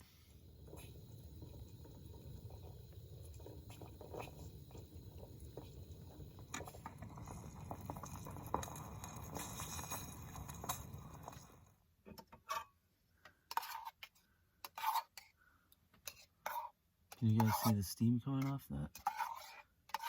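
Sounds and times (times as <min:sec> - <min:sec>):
camp stove burner rumbling: 0:00.0 - 0:11.8
soup bubbling and popping: 0:00.3 - 0:11.8.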